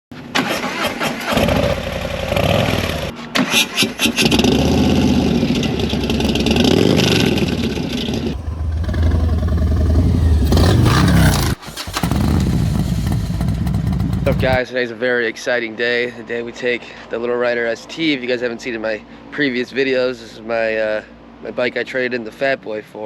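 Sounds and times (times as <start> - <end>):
motorcycle engine revving: 0.7 - 3.2, 4.0 - 14.6.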